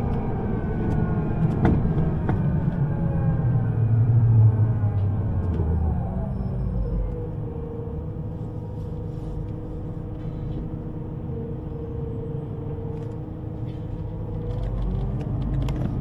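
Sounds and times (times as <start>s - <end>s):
underground train rumbling: 0.0s - 16.0s.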